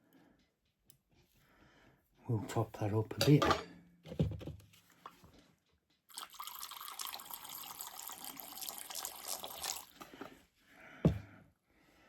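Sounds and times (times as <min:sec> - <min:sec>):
water trickling into a bowl: 0:06.1 - 0:10.1.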